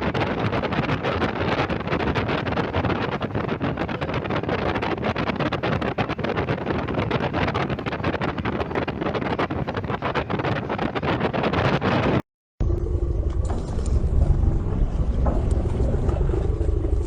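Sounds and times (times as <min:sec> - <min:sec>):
wind buffeting microphone: 0:00.0 - 0:17.0
steady low drone: 0:12.6 - 0:17.0.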